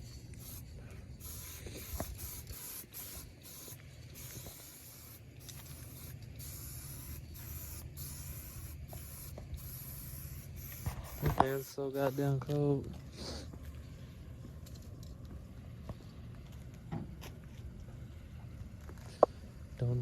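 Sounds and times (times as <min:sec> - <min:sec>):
hiss of spray: 0:00.0 - 0:12.4
low steady hum: 0:00.0 - 0:20.0.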